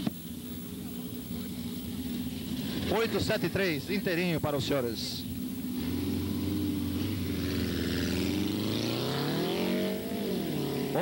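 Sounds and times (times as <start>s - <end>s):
race car engine revving: 5.6s - 11.0s.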